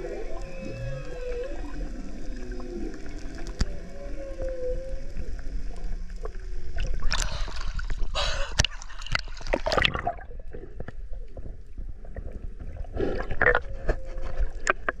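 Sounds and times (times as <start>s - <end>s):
whale tonal call: 0.0s - 6.3s
underwater bubbling and rushing: 0.0s - 15.0s.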